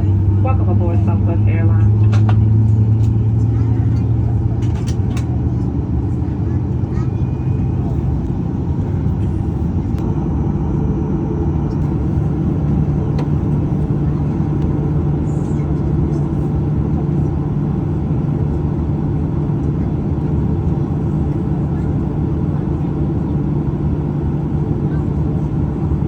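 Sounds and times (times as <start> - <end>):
jet engines rumbling in cabin: 0.0 - 26.0.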